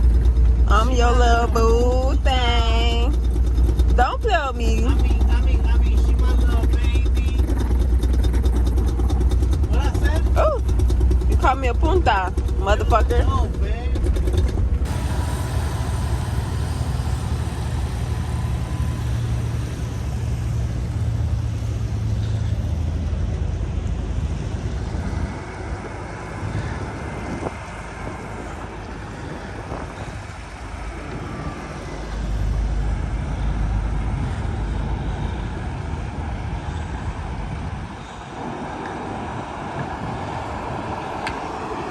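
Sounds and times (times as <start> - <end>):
diesel engine rumbling: 0.0 - 41.9.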